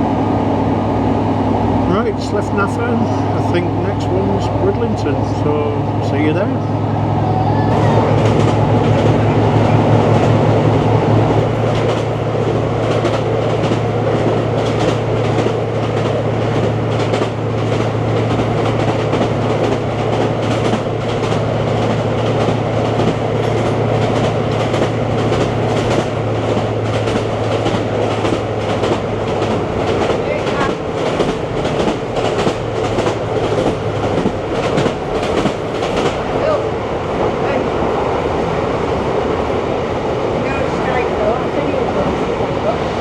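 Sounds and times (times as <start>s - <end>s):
train engine drone: 0.0s - 43.0s
wheels clicking over rail joints: 11.6s - 36.3s.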